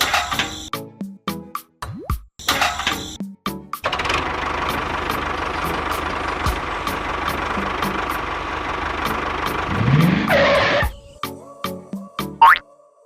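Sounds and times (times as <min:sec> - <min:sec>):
engine revving: 0:03.8 - 0:11.1.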